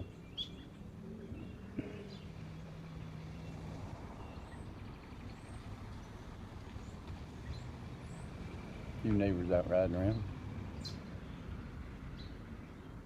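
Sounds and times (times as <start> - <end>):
faint bird chirps: 0.0 - 3.6
vehicle engine passing by: 0.8 - 13.0.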